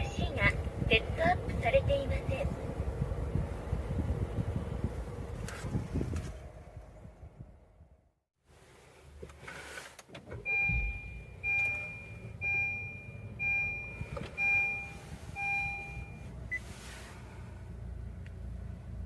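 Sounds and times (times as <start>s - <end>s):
low steady rumble: 0.0s - 9.4s, 10.3s - 19.0s
dashboard chime beeping: 10.5s - 16.2s
thump: 10.6s - 11.1s.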